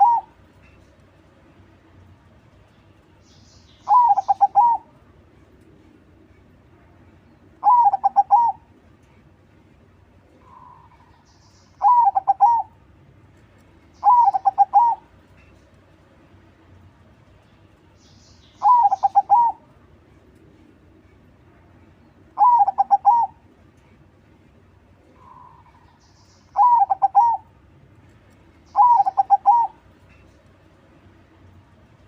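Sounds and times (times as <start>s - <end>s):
dove cooing: 0.0s - 0.4s, 3.9s - 5.0s, 7.6s - 8.7s, 11.8s - 12.8s, 14.0s - 15.1s, 18.6s - 19.7s, 22.4s - 23.4s, 26.6s - 27.5s, 28.7s - 30.2s.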